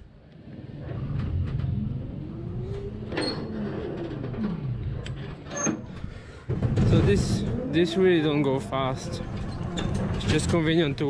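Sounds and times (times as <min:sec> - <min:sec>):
low hum: 0:00.0 - 0:10.3.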